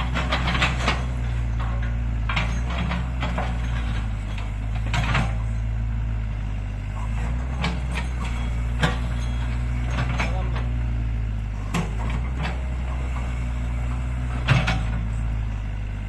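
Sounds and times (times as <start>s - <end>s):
sharp metal clanks and knocks: 0.0s - 5.7s, 7.4s - 10.7s
heavy diesel engines running: 0.0s - 16.0s.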